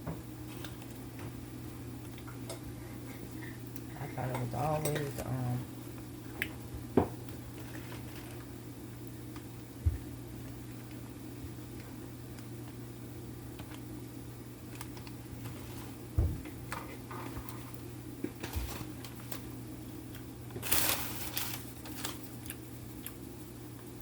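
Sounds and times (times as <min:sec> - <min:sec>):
packaging crinkling rustle: 0:07.5 - 0:08.5, 0:14.6 - 0:16.0, 0:16.7 - 0:19.6, 0:20.5 - 0:22.6.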